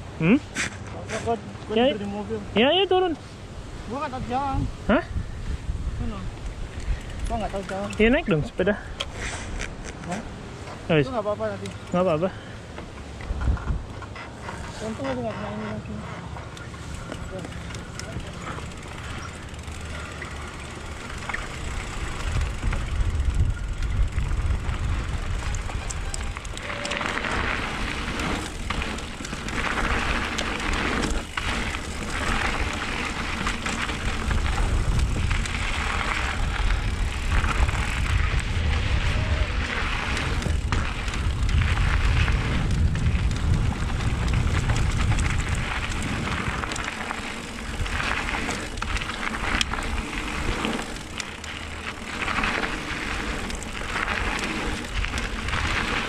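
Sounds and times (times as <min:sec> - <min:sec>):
wind buffeting microphone: 0:03.4 - 0:10.9, 0:12.6 - 0:15.2, 0:15.8 - 0:56.0
tyres skidding on gravel: 0:14.2 - 0:56.0.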